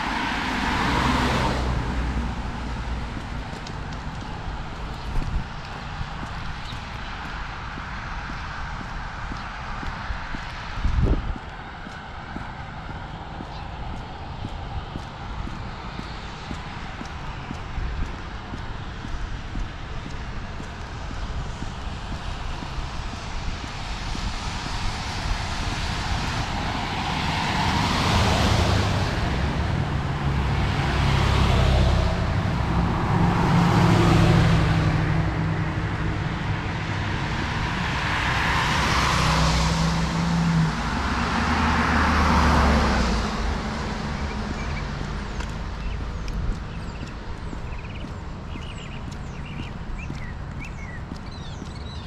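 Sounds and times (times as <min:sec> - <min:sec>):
tyres hissing on wet road: 0:00.0 - 0:04.9, 0:14.6 - 0:46.2.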